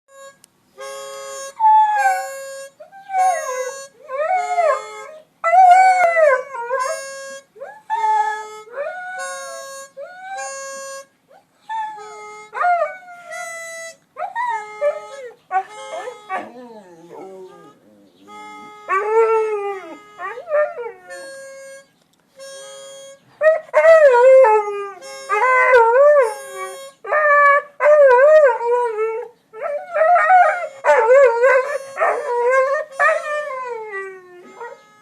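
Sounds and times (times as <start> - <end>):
free-reed instrument chords: 0.1 - 35.0
dog yipping and whimpering: 14.2 - 21.0
dog howling: 14.3 - 18.1.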